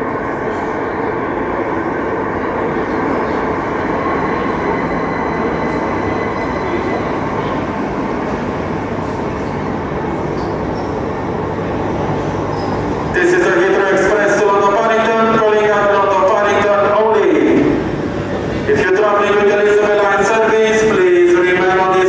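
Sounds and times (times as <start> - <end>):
train and rail rumble: 0.0 - 22.0.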